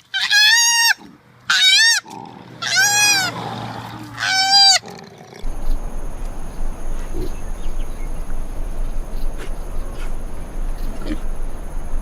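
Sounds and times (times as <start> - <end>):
high-pitched animal call: 4.2 - 4.9
faint high whines: 5.4 - 12.0
rough noise with low rumble: 5.4 - 12.0.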